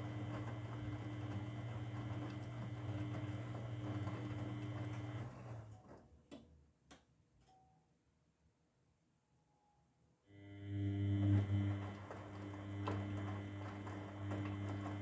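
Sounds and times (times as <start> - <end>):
washing machine motor humming: 0.0 - 5.9, 10.4 - 15.0.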